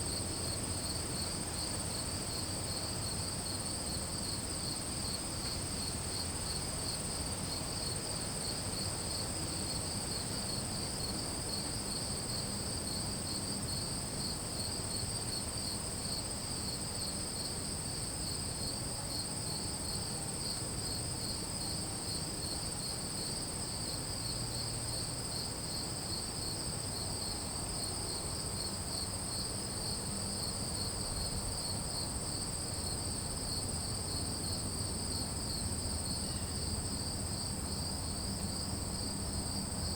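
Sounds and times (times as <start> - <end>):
low pulsing insect trill: 0.0 - 39.9
high insect trill: 27.2 - 39.9.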